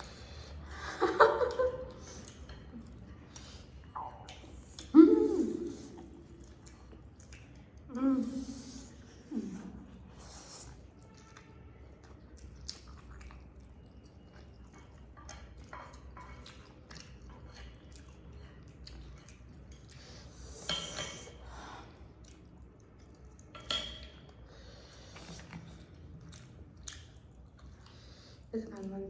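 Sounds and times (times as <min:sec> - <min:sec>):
chewing: 0:01.4 - 0:29.0
cutlery and dishes clicking: 0:23.6 - 0:24.2.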